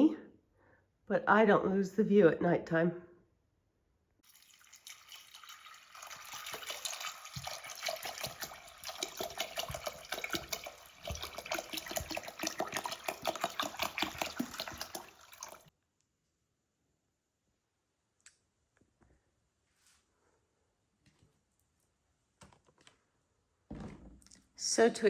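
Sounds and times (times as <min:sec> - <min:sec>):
tap water splashing into sink: 0:04.2 - 0:15.7.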